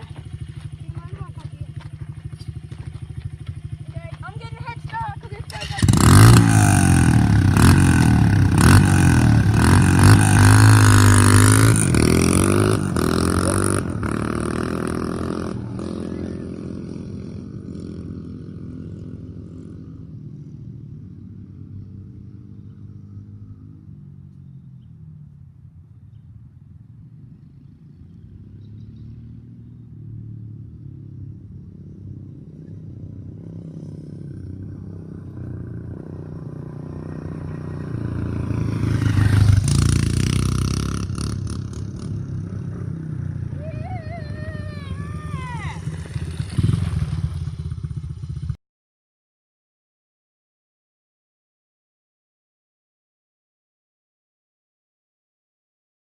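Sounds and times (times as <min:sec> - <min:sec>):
small motorbike engine revving: 0:05.4 - 0:19.2, 0:33.3 - 0:42.5, 0:44.2 - 0:48.5.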